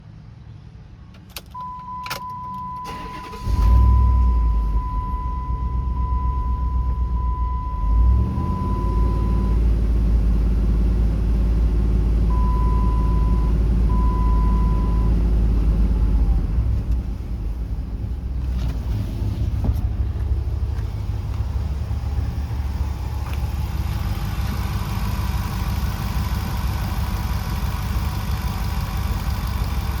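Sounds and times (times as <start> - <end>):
car engine starting and idling: 1.1 - 30.0
engine revving: 7.9 - 12.7.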